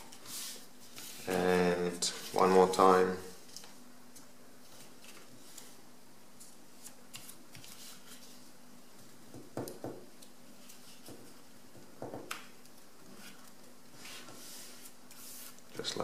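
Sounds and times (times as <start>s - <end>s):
paper folding and crinkling: 0.0s - 2.8s, 4.6s - 5.8s, 6.4s - 8.5s
faint steady hum: 0.0s - 16.0s.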